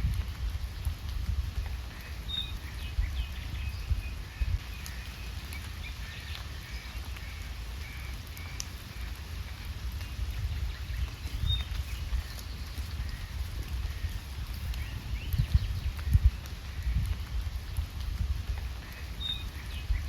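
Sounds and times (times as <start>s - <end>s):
small birds chirping: 0.0s - 20.0s
steady rain: 0.0s - 20.0s.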